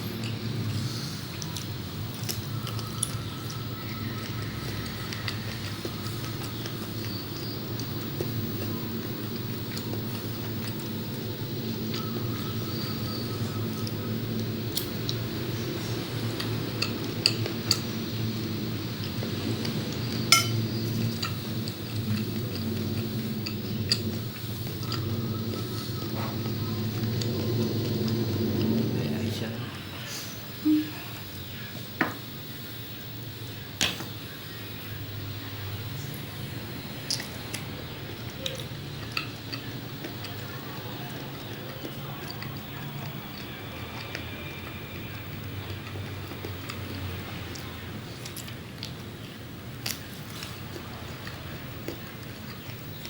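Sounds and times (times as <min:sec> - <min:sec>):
steady low hum: 0:00.0 - 0:53.0
cutlery clinking on dishes: 0:20.3 - 0:21.4
person chewing with mouth clicks: 0:38.3 - 0:49.2, 0:49.8 - 0:53.0.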